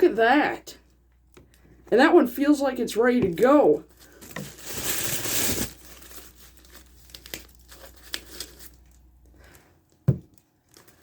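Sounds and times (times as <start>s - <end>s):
fruit packaging crinkling: 3.8s - 11.0s.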